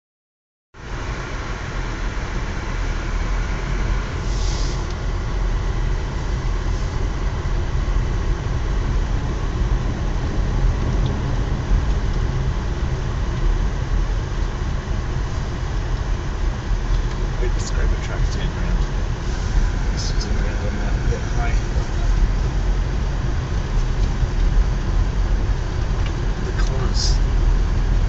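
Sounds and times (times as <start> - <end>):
vehicle engine and road rumble: 0.8 - 28.0
brief hiss: 4.2 - 4.9.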